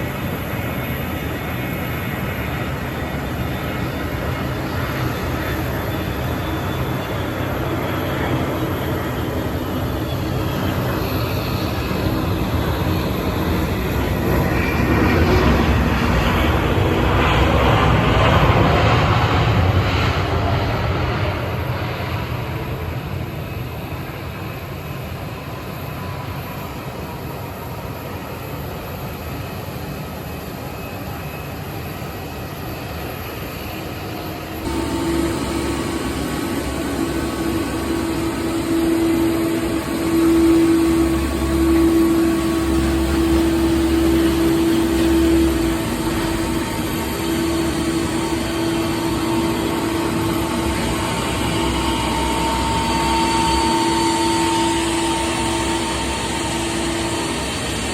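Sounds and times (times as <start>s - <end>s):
jet engines of passing airliner: 0.0s - 57.9s
steady engine hum: 34.6s - 57.9s.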